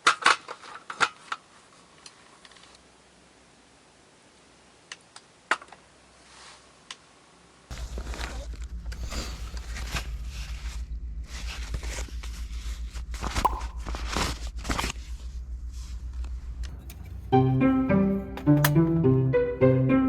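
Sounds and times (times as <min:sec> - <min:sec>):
music: 0:16.7 - 0:20.0.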